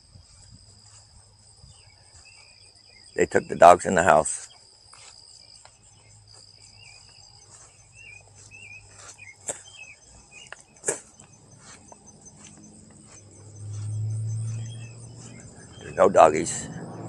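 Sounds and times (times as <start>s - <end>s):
insects trilling: 0.0s - 17.0s
bird wavering chirps: 5.9s - 17.0s.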